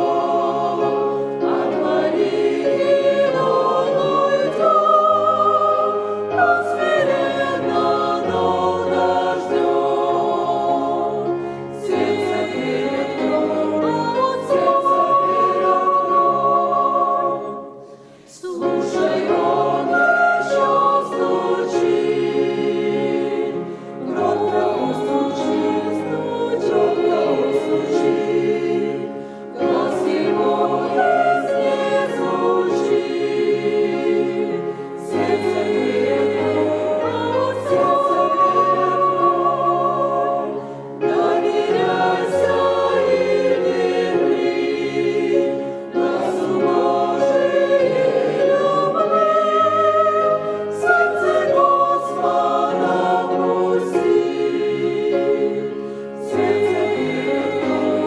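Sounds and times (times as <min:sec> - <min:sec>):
church choir singing a hymn: 0:00.0 - 0:58.0.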